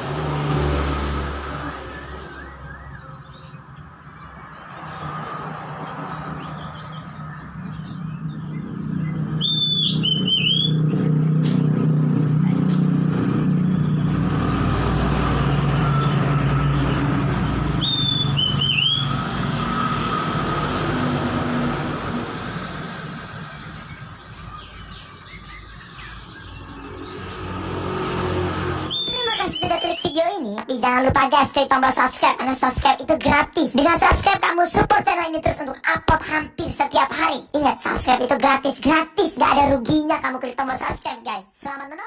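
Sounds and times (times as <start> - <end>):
vehicle rumble: 0.0 - 40.9
bird whistling song: 1.6 - 3.6, 6.4 - 11.0, 17.8 - 19.2, 24.4 - 26.8, 28.9 - 30.4.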